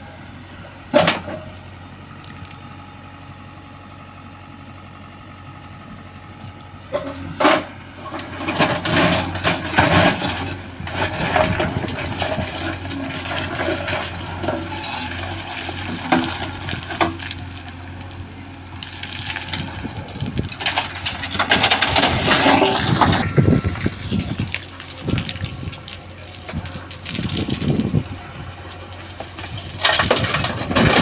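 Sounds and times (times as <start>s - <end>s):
diesel engine running: 0.0s - 31.0s
loose stones clattering: 18.8s - 28.0s, 28.8s - 31.0s.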